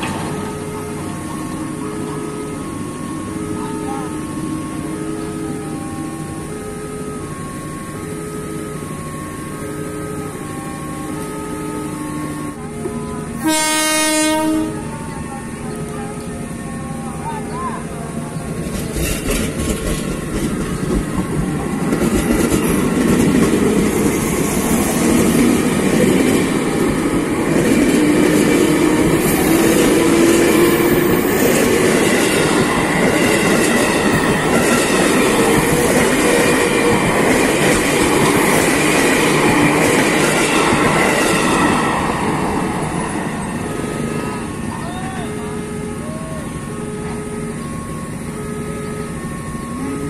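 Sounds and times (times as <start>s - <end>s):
train wheels on rails: 0.0s - 3.3s, 18.2s - 50.0s
electric train passing: 0.0s - 50.0s.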